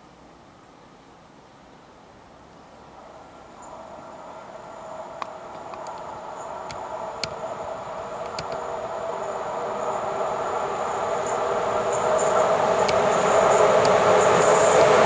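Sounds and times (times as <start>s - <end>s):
electric train rail hum: 0.0s - 15.0s
sharp clicks: 8.2s - 8.6s.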